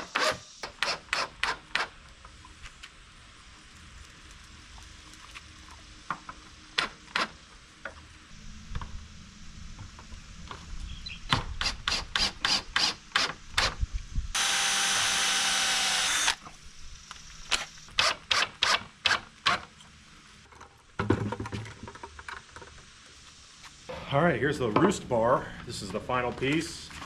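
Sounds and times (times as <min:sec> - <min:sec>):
power tool running: 0:14.3 - 0:16.5.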